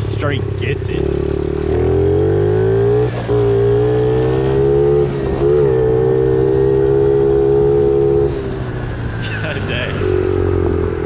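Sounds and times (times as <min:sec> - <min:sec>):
pit bike engine revving: 0:00.0 - 0:11.0.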